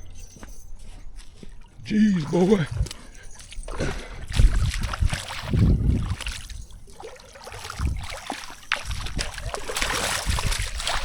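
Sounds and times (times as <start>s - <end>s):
wind buffeting microphone: 2.6s - 11.0s.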